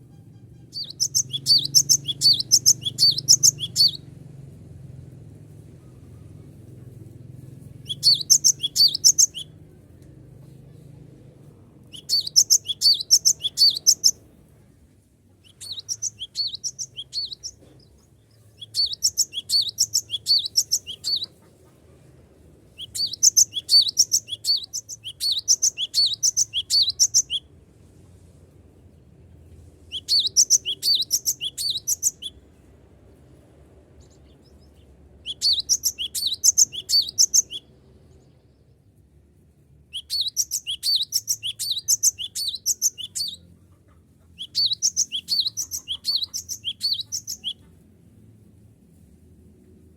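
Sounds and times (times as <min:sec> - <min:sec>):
bird singing rapid sharp high notes: 0:00.1 - 0:04.1, 0:07.8 - 0:09.6, 0:11.9 - 0:14.2, 0:15.4 - 0:17.6, 0:18.6 - 0:21.3, 0:22.8 - 0:27.4, 0:29.9 - 0:32.4, 0:35.2 - 0:37.9, 0:39.9 - 0:43.4, 0:44.4 - 0:47.6.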